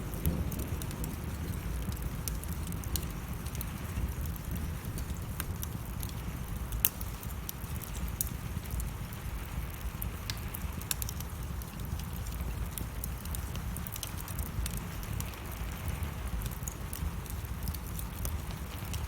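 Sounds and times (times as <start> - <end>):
fire crackling and popping: 0.0 - 19.0
low rumble of flames: 0.0 - 19.0.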